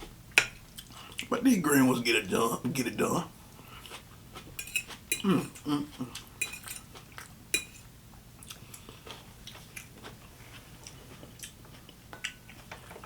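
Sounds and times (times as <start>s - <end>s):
person chewing food: 0.7s - 1.3s, 3.5s - 13.0s.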